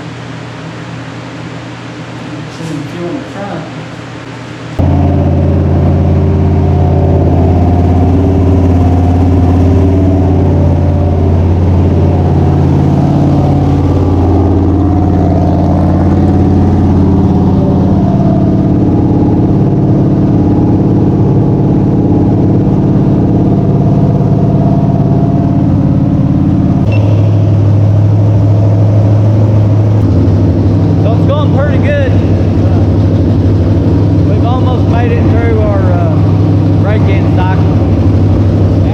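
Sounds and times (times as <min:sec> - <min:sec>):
race car engine running loudly: 0:04.7 - 0:38.9.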